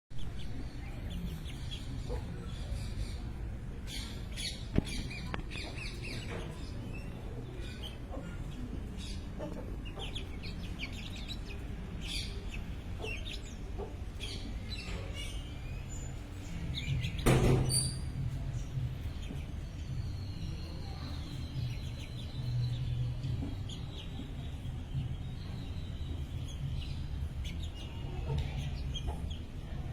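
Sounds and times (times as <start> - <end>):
birds chirping: 0.2 - 29.9
low background rumble: 17.9 - 29.9.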